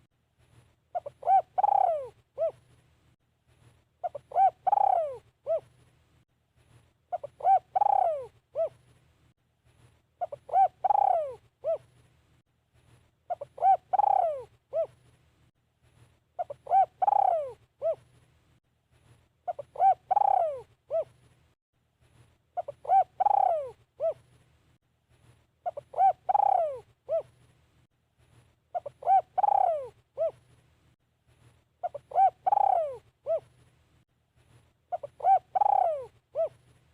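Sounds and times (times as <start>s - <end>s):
dove cooing: 0.9s - 2.6s, 4.0s - 5.8s, 7.1s - 8.8s, 10.2s - 11.9s, 13.3s - 15.0s, 16.4s - 18.1s, 19.5s - 21.2s, 22.6s - 24.3s, 25.6s - 27.4s, 28.7s - 30.5s, 31.8s - 33.6s, 34.9s - 36.7s.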